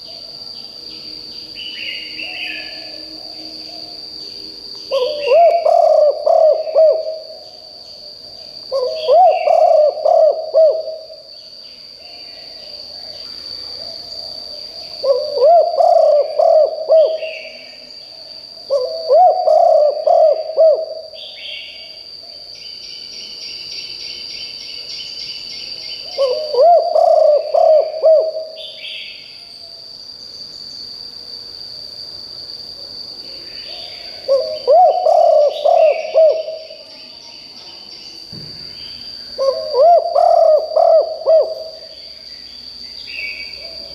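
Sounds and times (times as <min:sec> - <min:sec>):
dove cooing: 0:04.9 - 0:07.5, 0:08.7 - 0:11.2, 0:15.0 - 0:17.6, 0:18.7 - 0:21.6, 0:26.1 - 0:28.7, 0:33.7 - 0:36.8, 0:39.4 - 0:41.8.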